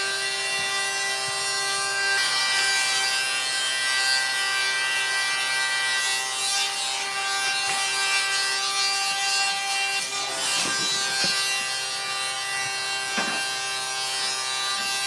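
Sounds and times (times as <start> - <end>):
power tool sanding wood: 0.0 - 15.0.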